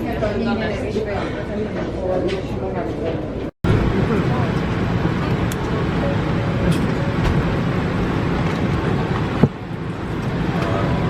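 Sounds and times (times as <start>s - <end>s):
machinery rumble and hiss: 3.7s - 11.0s.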